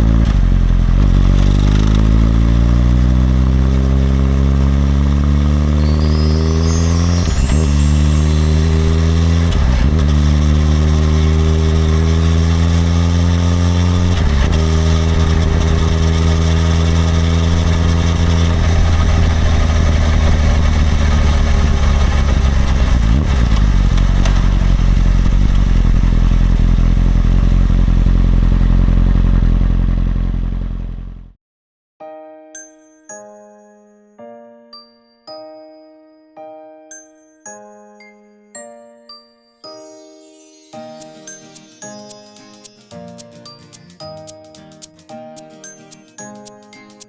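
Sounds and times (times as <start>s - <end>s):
motorcycle engine accelerating: 0.0s - 31.4s.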